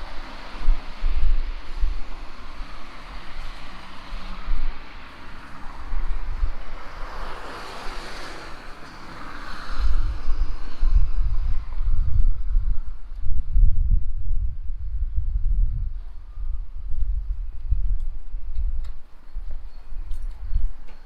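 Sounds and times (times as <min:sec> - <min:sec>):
steady outdoor hiss: 0:00.0 - 0:21.0
wind buffeting microphone: 0:00.0 - 0:21.0.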